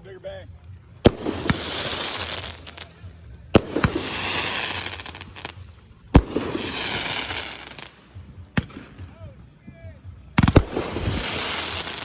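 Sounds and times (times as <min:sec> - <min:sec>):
firework shells bursting: 0:01.0 - 0:09.1, 0:10.4 - 0:12.0
firework crackling hiss: 0:01.1 - 0:08.1, 0:10.4 - 0:12.0.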